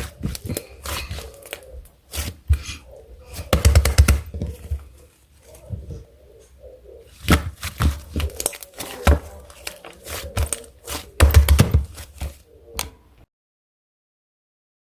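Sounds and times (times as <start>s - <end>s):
handling clicks taps and crinkling: 7.3s - 12.9s.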